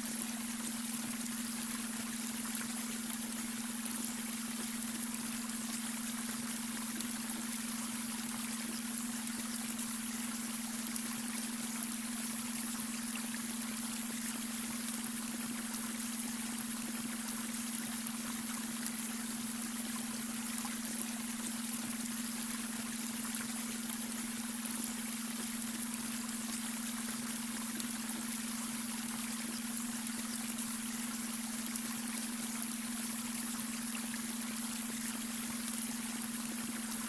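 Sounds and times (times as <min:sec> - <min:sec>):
steady low hum tone: 0:00.0 - 0:37.0.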